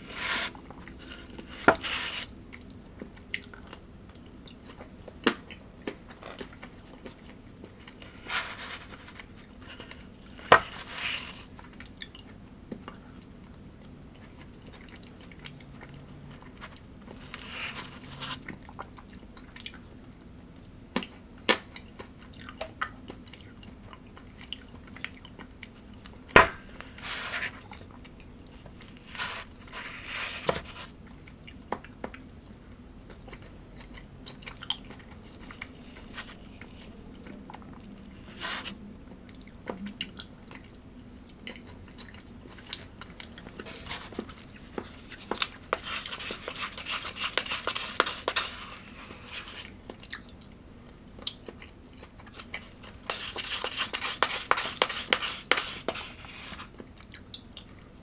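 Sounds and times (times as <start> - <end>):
person chewing crunchy food: 33.1 - 38.4, 41.3 - 57.8.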